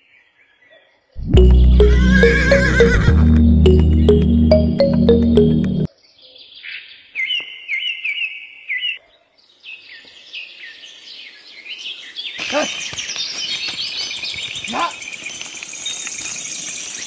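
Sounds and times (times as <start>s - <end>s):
songbirds chirping: 5.9s - 17.0s.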